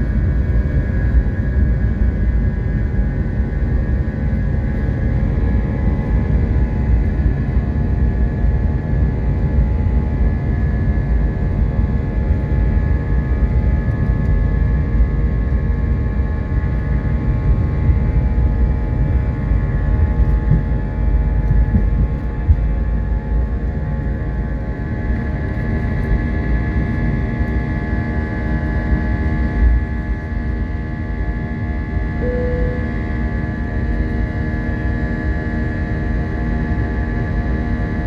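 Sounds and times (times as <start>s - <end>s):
jet airliner cabin rumble: 0.0s - 31.5s
jet engine whining tones: 32.2s - 33.4s.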